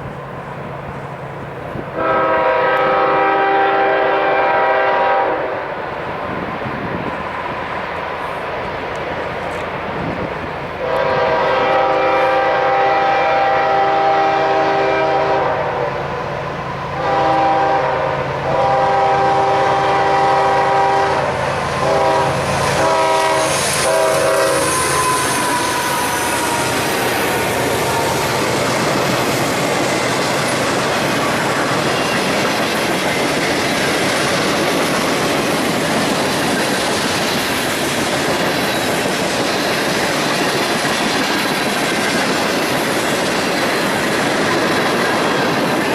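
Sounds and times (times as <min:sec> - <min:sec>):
train wheels clacking over rails: 0:00.0 - 0:45.9
locomotive air horn: 0:02.0 - 0:05.7, 0:10.8 - 0:28.4.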